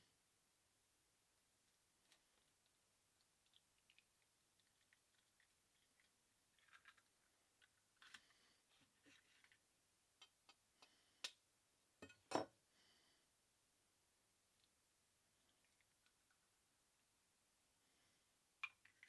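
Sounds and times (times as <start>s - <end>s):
eggs cracking: 2.1s - 8.5s, 18.6s - 19.0s.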